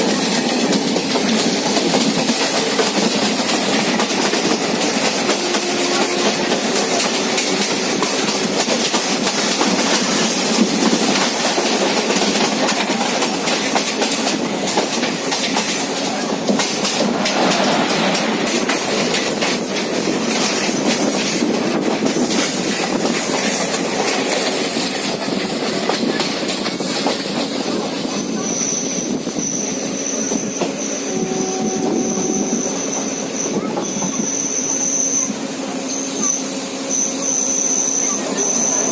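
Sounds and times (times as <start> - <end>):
train wheels clattering on rails: 0.0 - 38.9
high wheel squeal: 28.1 - 38.9.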